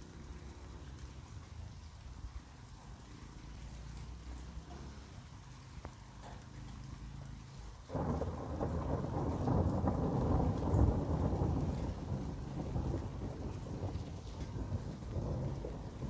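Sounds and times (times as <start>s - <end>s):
rain falling: 0.0s - 16.0s
thunder rolling: 7.9s - 16.0s.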